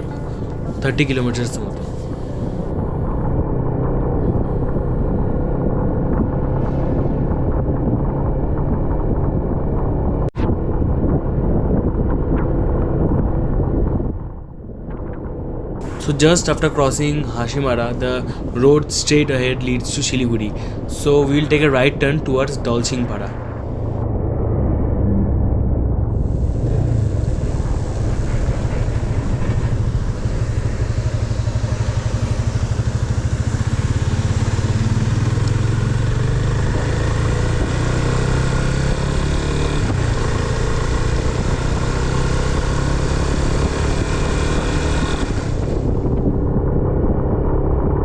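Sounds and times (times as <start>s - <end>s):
motorcycle engine rumbling: 0.0s - 3.1s, 15.8s - 24.0s, 26.0s - 44.1s
rush of wind and road noise: 0.0s - 48.0s.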